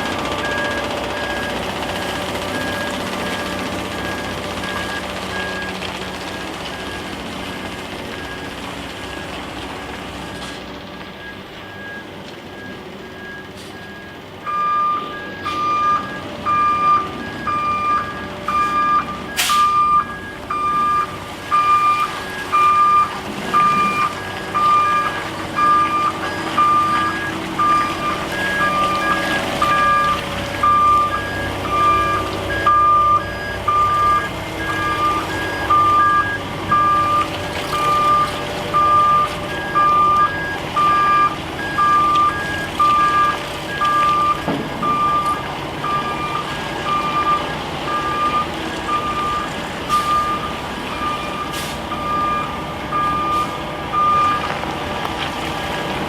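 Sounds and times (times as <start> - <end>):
low backup alarm beeping: 0.0 - 54.6
high-pitched backup alarm beeping: 11.2 - 54.5.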